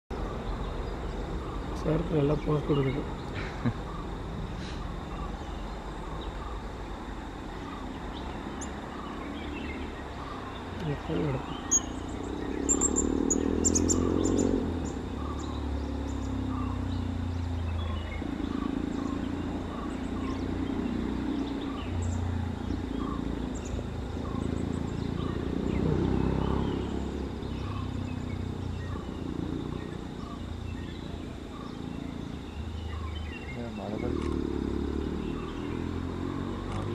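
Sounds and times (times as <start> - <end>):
faint bird calls: 0.1 - 36.9
sharp clicks: 34.1 - 34.4.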